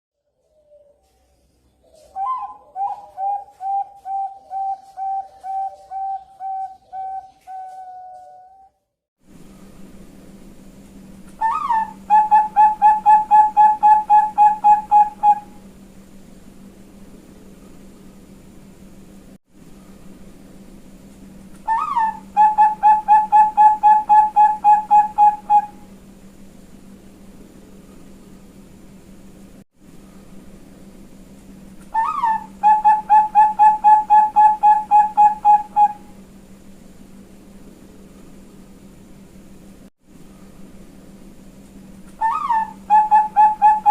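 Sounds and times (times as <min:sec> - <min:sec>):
dove cooing: 0:01.8 - 0:08.7, 0:11.4 - 0:15.6, 0:21.7 - 0:25.9, 0:31.9 - 0:36.1, 0:42.2 - 0:43.9.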